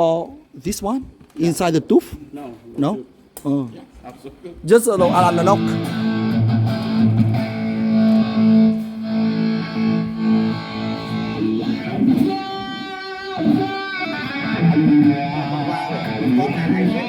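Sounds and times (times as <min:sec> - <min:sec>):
electric guitar: 0:05.0 - 0:17.0.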